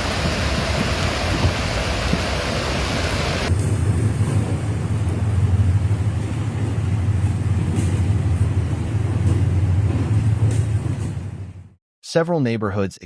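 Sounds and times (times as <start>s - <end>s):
rushing floodwater: 0.0s - 3.5s.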